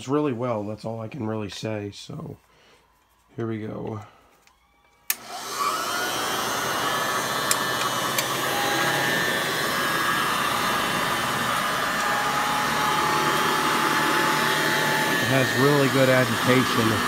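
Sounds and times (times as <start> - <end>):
vacuum cleaner motor running: 4.6 - 17.0.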